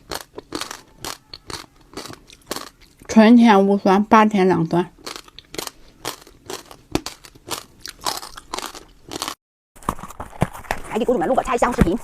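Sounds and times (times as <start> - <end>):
person chewing crisp food: 0.0 - 3.1, 5.0 - 9.4.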